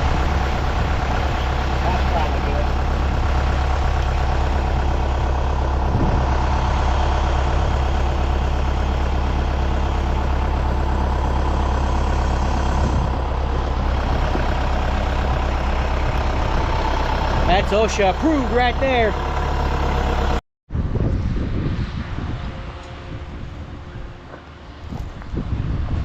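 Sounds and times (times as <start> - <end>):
heavy vehicle engine humming: 0.0 - 26.0.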